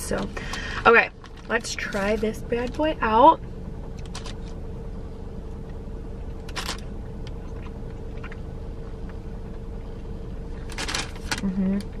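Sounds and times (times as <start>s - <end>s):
car cabin hum: 0.0s - 12.0s
person chewing: 7.1s - 9.2s.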